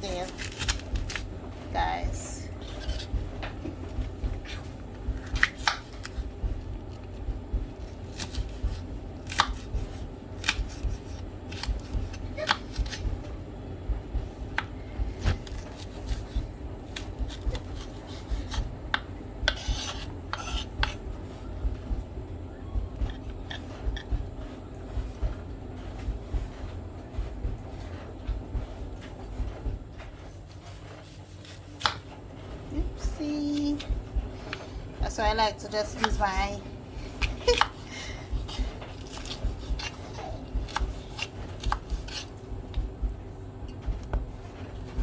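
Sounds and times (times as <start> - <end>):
low steady hum: 0.0 - 45.0
knife chopping on board: 0.1 - 1.3, 1.9 - 13.4, 14.1 - 22.0, 29.4 - 32.2, 32.8 - 43.1.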